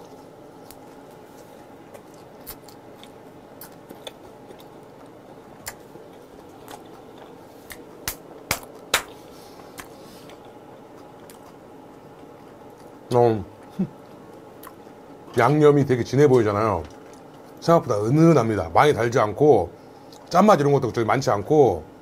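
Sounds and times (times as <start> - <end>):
chewing with wet crunches: 0.0 - 15.4
faint steady hum: 0.0 - 22.0.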